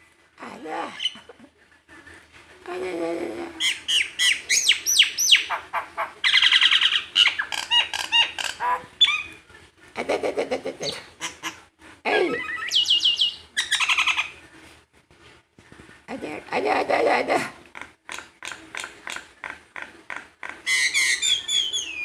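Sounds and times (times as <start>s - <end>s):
bird squawking: 3.6s - 9.4s, 10.8s - 14.4s, 20.6s - 22.0s
bird whistling: 3.7s - 5.5s, 12.5s - 14.3s, 20.7s - 22.0s
bird trilling: 12.2s - 14.4s, 20.7s - 22.0s.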